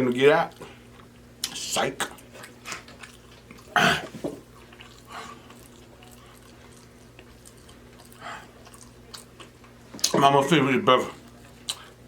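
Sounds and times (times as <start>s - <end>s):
low steady hum: 0.0s - 12.0s
person chewing food: 0.5s - 10.2s, 11.2s - 12.0s.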